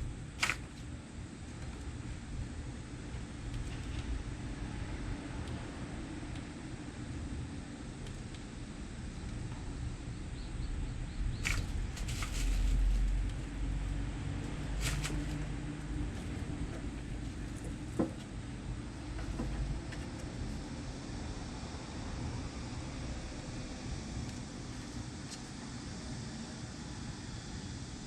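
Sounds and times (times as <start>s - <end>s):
kittens scratching and tapping: 0.4s - 0.8s, 11.4s - 13.5s, 14.4s - 18.3s.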